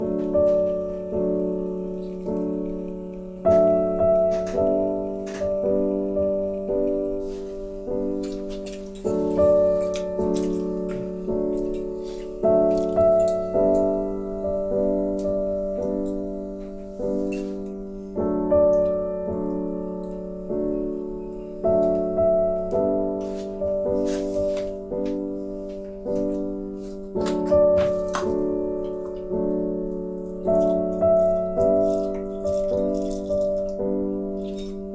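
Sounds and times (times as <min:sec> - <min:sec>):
slow piano chords: 0:00.0 - 0:34.9.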